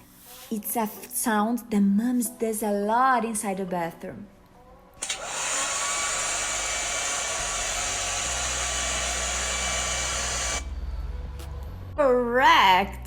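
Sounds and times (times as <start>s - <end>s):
hair dryer blowing: 5.0s - 10.7s.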